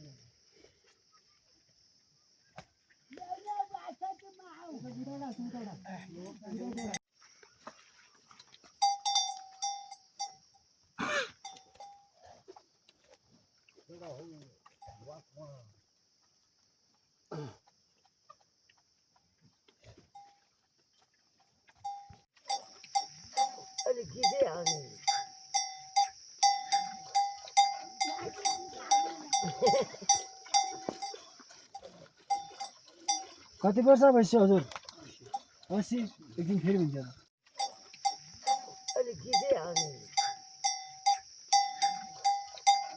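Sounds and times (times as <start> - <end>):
metal livestock bell clanking: 5.2 - 7.0, 8.8 - 10.5, 21.8 - 33.5, 37.6 - 42.9.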